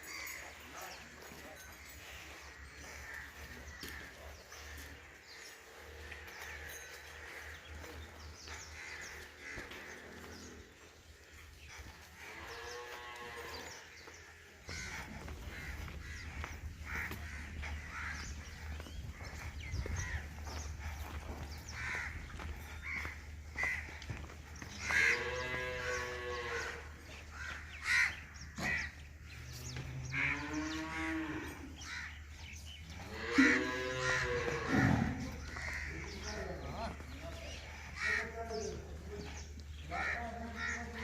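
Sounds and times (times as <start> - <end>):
cattle mooing: 25.0 - 26.8, 29.6 - 31.6, 32.9 - 35.3.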